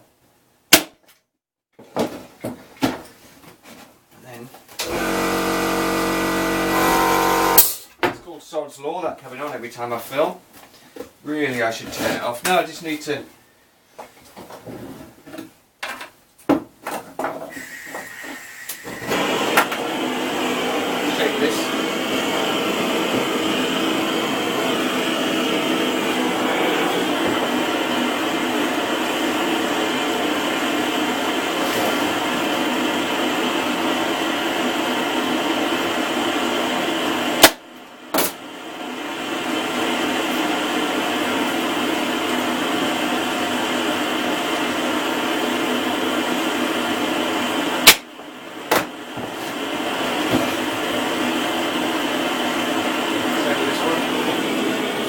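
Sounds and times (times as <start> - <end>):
heat gun blowing: 4.8 - 7.9, 17.5 - 28.2.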